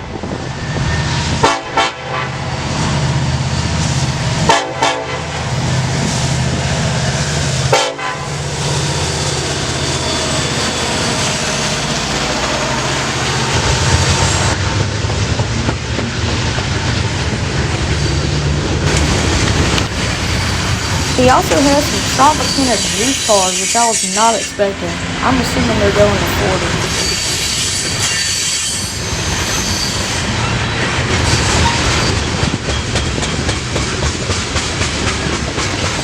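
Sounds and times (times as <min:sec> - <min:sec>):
locomotive engine drone: 0:00.0 - 0:28.1
train horn blasts: 0:01.3 - 0:02.6, 0:04.4 - 0:05.7, 0:07.6 - 0:08.9, 0:21.2 - 0:25.3.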